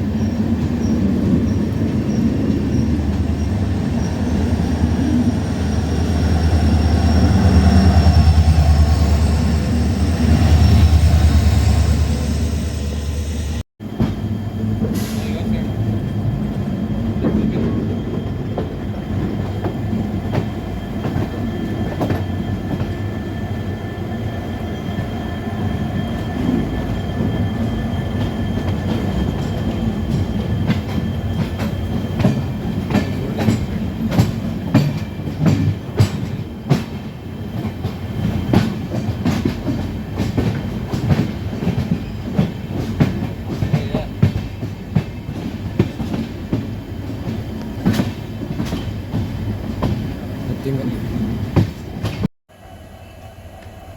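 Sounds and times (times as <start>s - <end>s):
diesel locomotive hum: 0.0s - 53.9s
wheels clattering on track: 26.2s - 50.8s.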